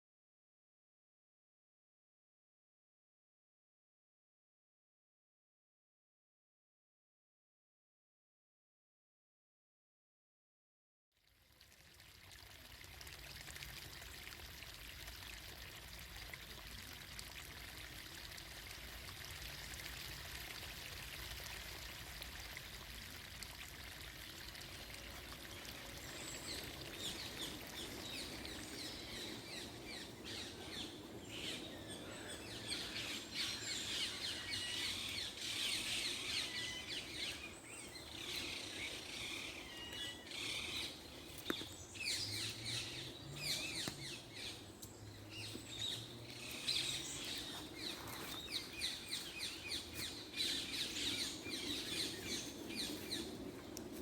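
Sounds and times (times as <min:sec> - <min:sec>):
water trickling: 0:11.2 - 0:54.0.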